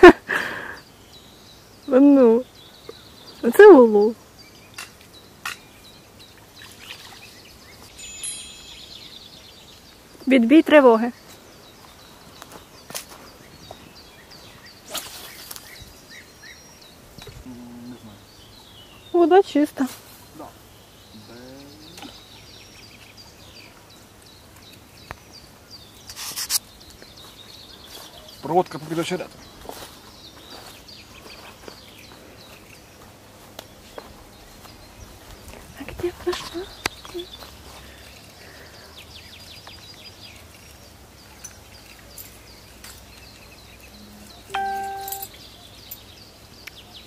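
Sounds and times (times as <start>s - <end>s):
outdoor background noise: 0.0s - 47.0s
small birds chirping: 0.0s - 47.0s
short beep-like tone: 44.5s - 45.3s.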